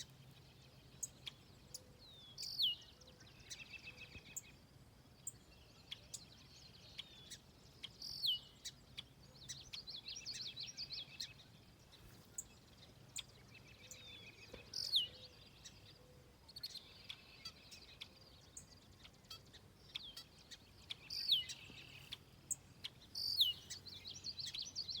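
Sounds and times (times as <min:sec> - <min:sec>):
birds chattering trills: 0:12.2 - 0:25.0.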